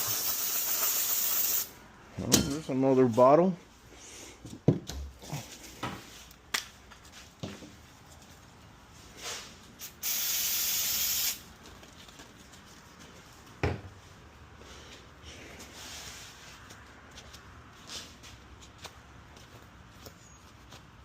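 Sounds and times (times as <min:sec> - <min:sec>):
aerosol can spraying: 0:00.0 - 0:01.7, 0:09.8 - 0:11.4.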